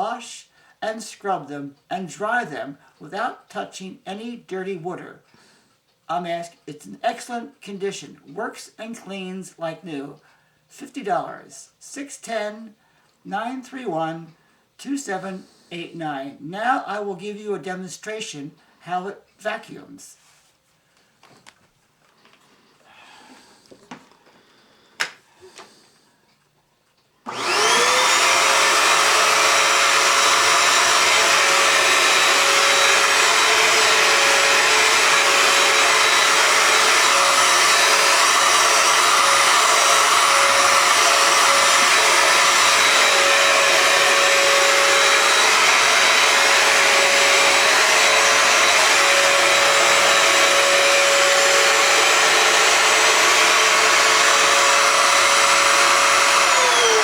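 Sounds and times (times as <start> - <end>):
vacuum motor whining: 27.3 - 57.0.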